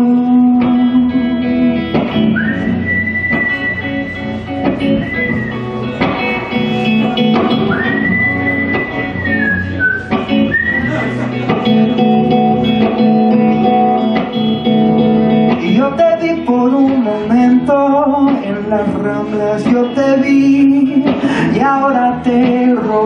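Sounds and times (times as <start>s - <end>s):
band music with guitars: 0.0s - 23.0s
person whistling melody: 2.2s - 6.3s, 7.5s - 11.2s.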